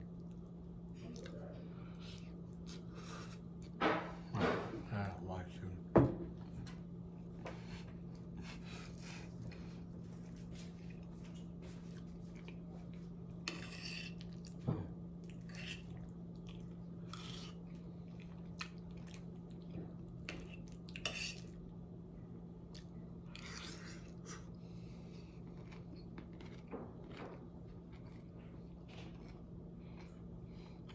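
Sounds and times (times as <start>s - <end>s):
steady low hum: 0.0s - 30.9s
person chewing: 15.2s - 21.6s, 22.6s - 30.9s.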